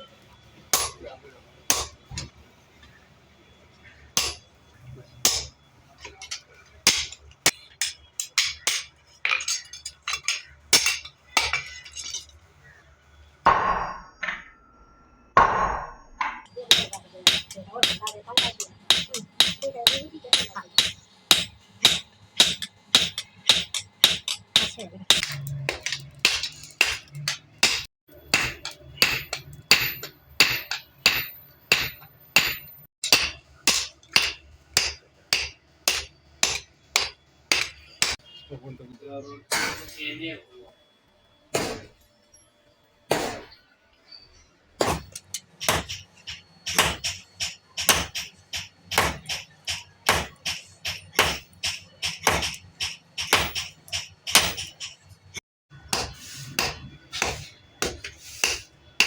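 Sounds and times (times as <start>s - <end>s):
hammer striking metal on anvil: 0.7s - 1.1s, 1.7s - 2.3s, 4.2s - 4.5s, 5.2s - 12.3s, 15.4s - 38.4s, 39.5s - 40.0s, 41.5s - 42.0s, 43.1s - 43.5s, 44.8s - 55.0s, 55.8s - 58.8s.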